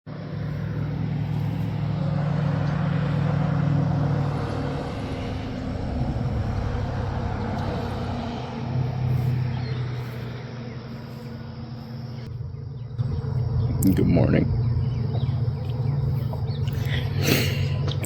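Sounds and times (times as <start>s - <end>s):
vehicle engine running: 0.1s - 18.0s.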